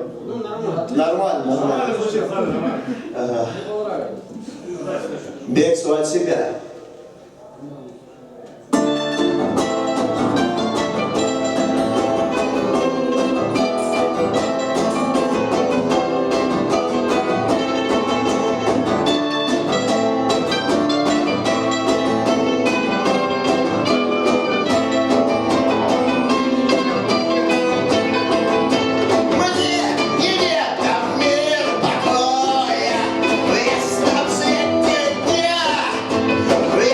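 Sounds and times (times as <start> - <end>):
live punk band playing: 8.8 - 36.9.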